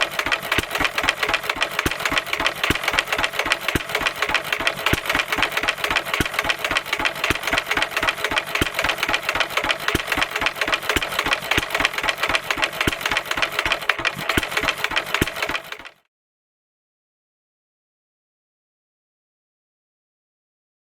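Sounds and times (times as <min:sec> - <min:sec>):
stationary engine clattering: 0:00.0 - 0:16.0.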